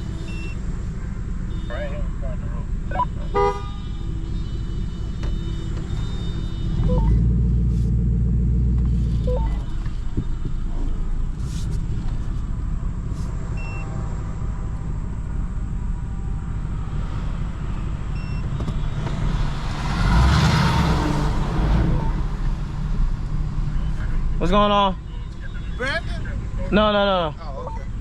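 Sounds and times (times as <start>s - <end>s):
vehicle engine rumbling: 0.0s - 28.0s
rush of passing vehicle: 16.2s - 24.5s.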